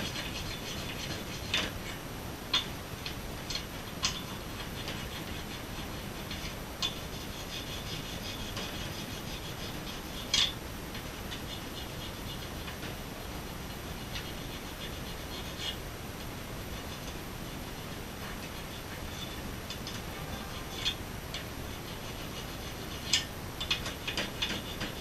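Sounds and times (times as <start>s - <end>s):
scrubbing metal engine parts: 0.0s - 2.7s, 16.7s - 25.0s.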